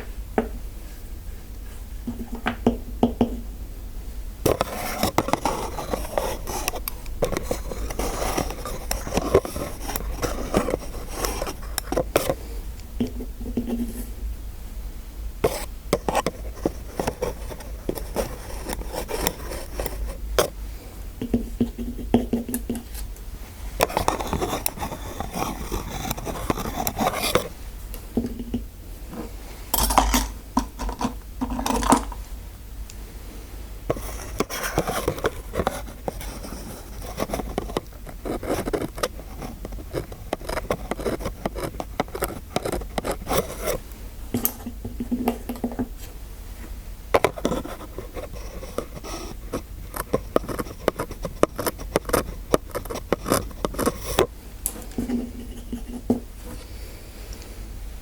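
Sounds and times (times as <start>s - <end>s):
dental tools scraping and clicking: 4.5s - 12.4s, 15.4s - 20.6s, 23.8s - 27.5s, 29.8s - 32.2s, 33.9s - 43.8s, 47.2s - 56.0s.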